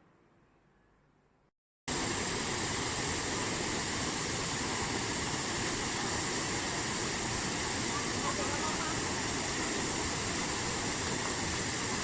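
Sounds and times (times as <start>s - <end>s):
faint hiss: 1.9s - 12.0s
waterfall rushing: 1.9s - 12.0s.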